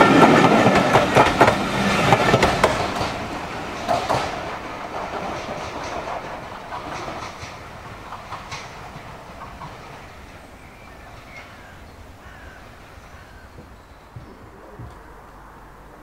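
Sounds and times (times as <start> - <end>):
wheels clicking over rail joints: 0.0 - 15.4
train rumble: 0.0 - 16.0
bird calls: 6.6 - 16.0.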